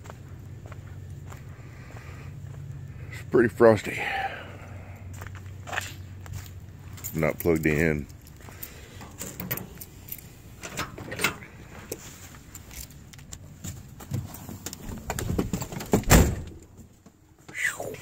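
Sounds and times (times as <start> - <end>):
keys jingling: 6.9 - 13.6
truck door slamming shut: 15.3 - 16.7.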